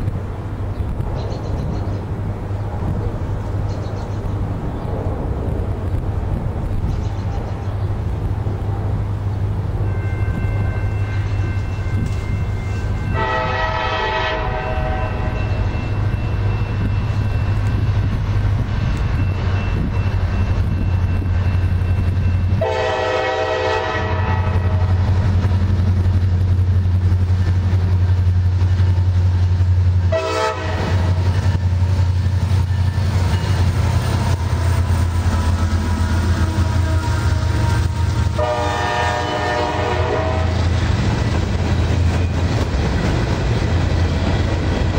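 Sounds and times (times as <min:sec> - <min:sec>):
diesel locomotive engine drone: 0:00.0 - 0:44.9
train horn: 0:09.9 - 0:16.1, 0:22.6 - 0:25.1, 0:30.1 - 0:31.3, 0:34.3 - 0:40.8.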